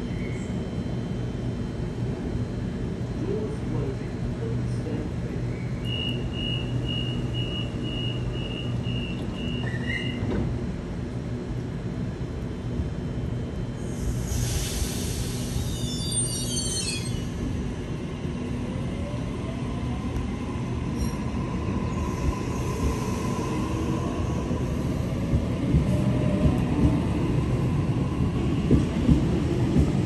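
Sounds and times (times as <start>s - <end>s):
train rumbling on rails: 0.0s - 30.0s
train clunks: 9.1s - 10.6s, 28.6s - 30.0s.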